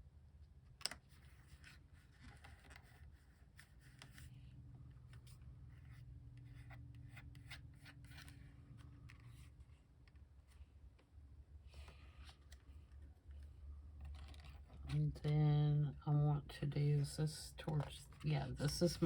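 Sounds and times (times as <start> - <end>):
paper rustling and tapping: 0.8 - 4.2, 11.8 - 15.3.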